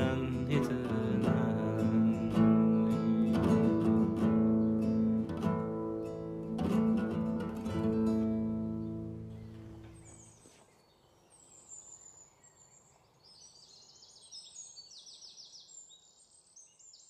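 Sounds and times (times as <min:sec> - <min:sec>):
acoustic guitar chord: 0:00.0 - 0:10.2
small birds chirping and trilling: 0:00.0 - 0:17.0.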